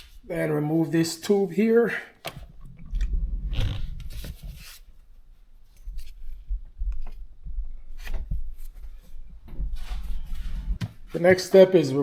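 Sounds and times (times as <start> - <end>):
tube rubbing: 2.4 - 5.0.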